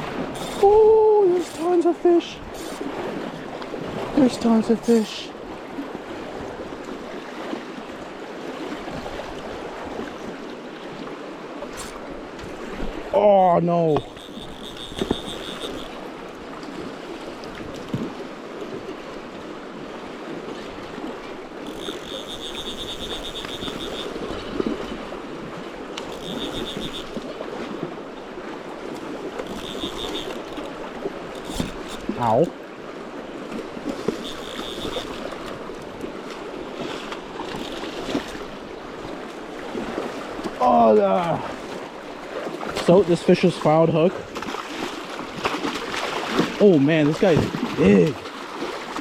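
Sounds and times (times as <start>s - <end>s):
river water rushing: 0.0s - 49.0s
small splashes and knocks: 16.6s - 18.8s, 44.2s - 49.0s.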